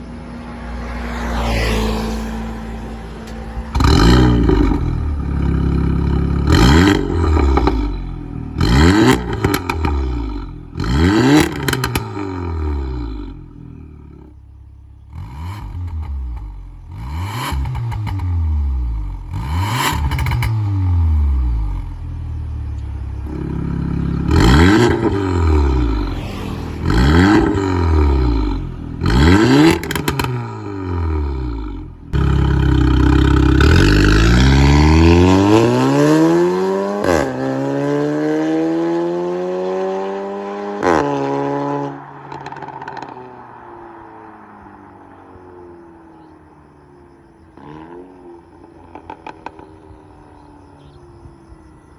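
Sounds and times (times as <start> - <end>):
car engine revving: 0.0 - 43.6
exhaust crack: 3.2 - 14.3, 23.2 - 35.3.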